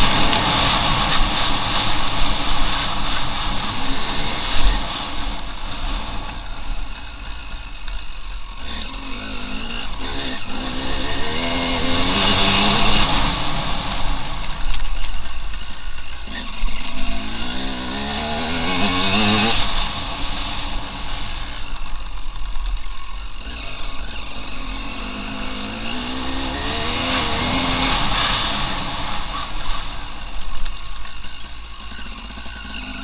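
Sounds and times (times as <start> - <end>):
steady rushing hiss: 0.0 - 8.6
motorcycle engine revving: 0.0 - 33.0.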